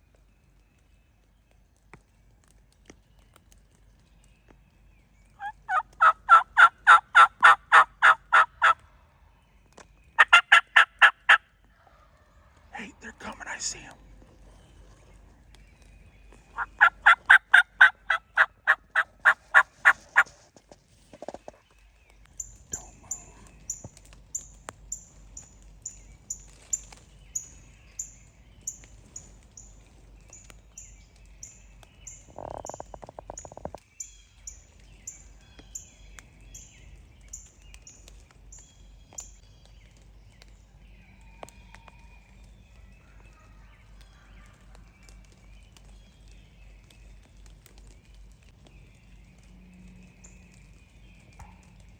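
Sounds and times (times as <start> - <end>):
wild turkeys yelping: 5.4 - 8.8, 10.2 - 13.9, 16.5 - 20.5, 22.7 - 24.5.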